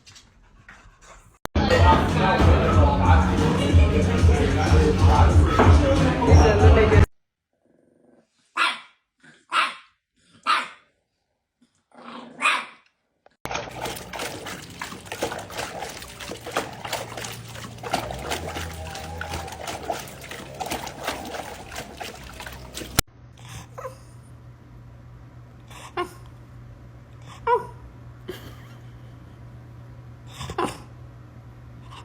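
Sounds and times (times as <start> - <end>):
dog barking: 8.6 - 10.9, 12.4 - 12.8.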